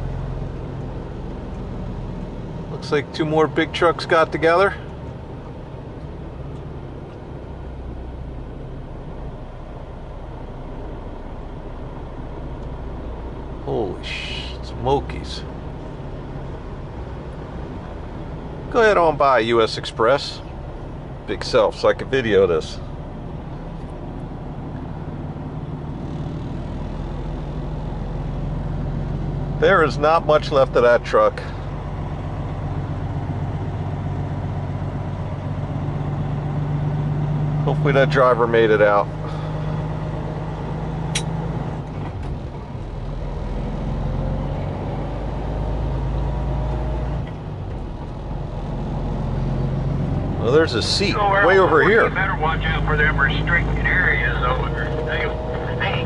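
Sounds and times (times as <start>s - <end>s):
road noise: 0.0s - 56.0s
truck diesel engine running: 0.0s - 56.0s
sharp click: 41.1s - 41.3s.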